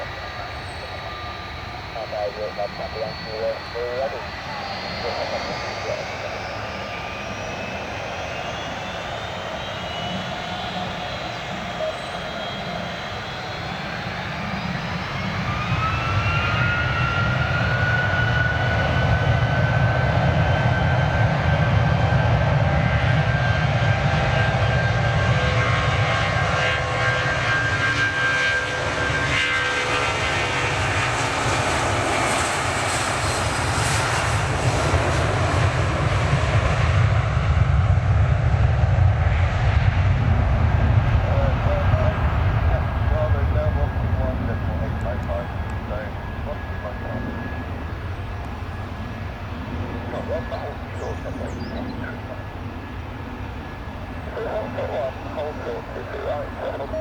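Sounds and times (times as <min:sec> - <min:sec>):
jet engine high whine: 0:00.0 - 0:57.0
jet engine rumble: 0:00.0 - 0:57.0.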